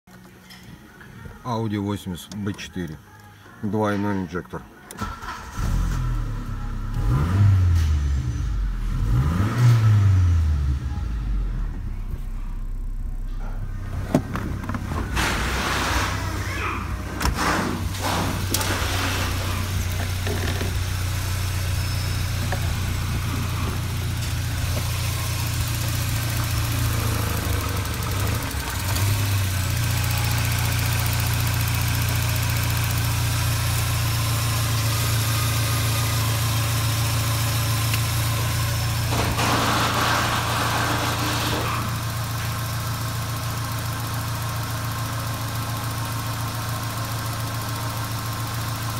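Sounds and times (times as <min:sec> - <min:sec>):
car engine idling: 0:10.3 - 0:48.9.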